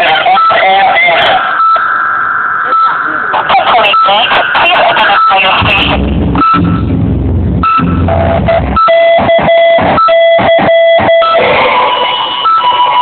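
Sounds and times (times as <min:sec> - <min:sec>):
short tone beeps: 0:05.2 - 0:06.8, 0:07.6 - 0:11.4
low rumble: 0:05.5 - 0:10.1.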